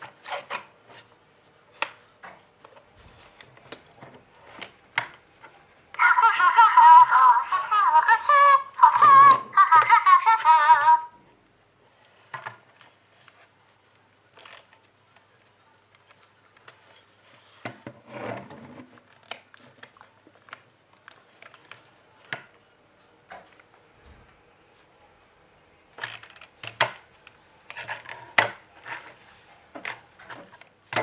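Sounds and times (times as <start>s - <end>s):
child giggling: 6.0s - 11.1s.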